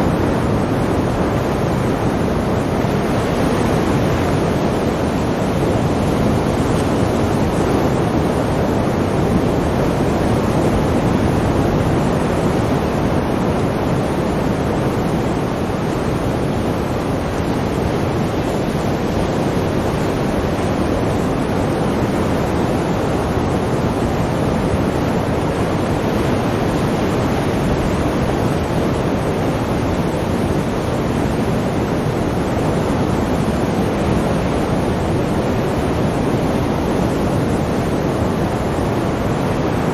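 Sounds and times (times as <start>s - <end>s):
sea waves rushing: 0.0s - 39.9s.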